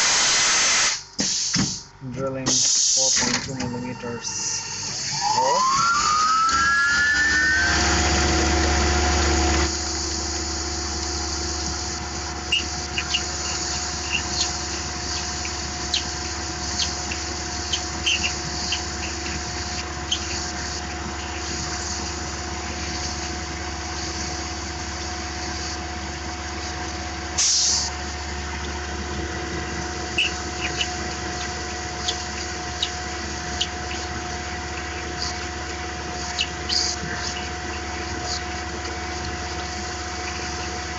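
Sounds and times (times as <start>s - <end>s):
coolant spraying: 0.0s - 1.9s, 7.8s - 40.9s
loud burst of noise: 0.0s - 3.5s, 4.2s - 15.2s
mill spindle whining: 1.8s - 40.9s.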